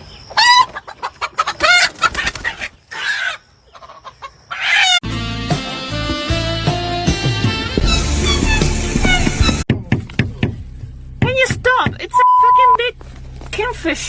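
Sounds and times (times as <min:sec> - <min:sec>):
chicken squawking: 0:00.3 - 0:05.0
background music: 0:05.0 - 0:09.6.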